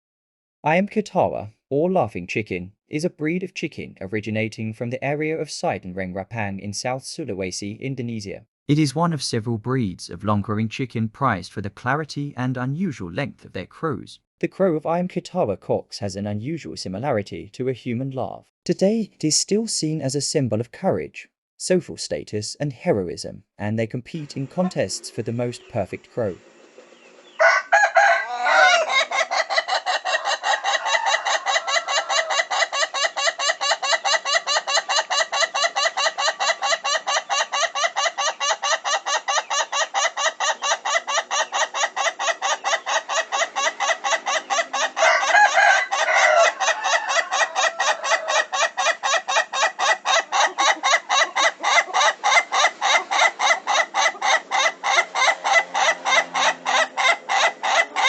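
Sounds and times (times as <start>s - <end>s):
smooth rooster call: 27.3s - 34.5s, 43.8s - 49.1s
roosters crowing in staccato notes: 27.4s - 58.0s.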